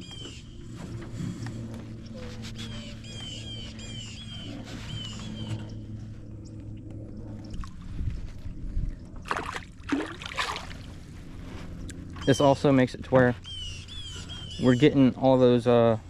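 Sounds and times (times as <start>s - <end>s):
water splashing against canoe: 9.2s - 10.9s
bird chirping: 13.4s - 15.3s.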